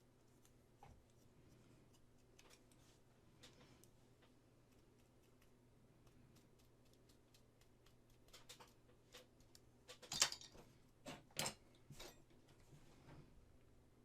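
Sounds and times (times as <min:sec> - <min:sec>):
small tools clicking and tapping: 0:06.3 - 0:12.4.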